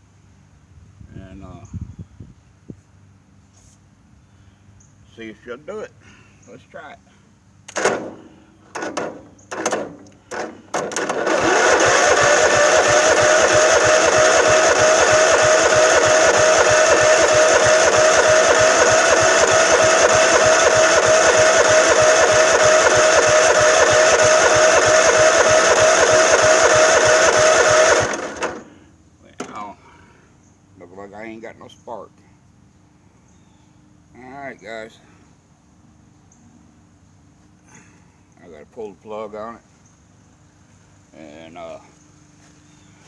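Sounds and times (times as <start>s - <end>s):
engine cranking with starter whine: 7.6s - 30.0s
sharp clicks: 7.7s - 28.7s.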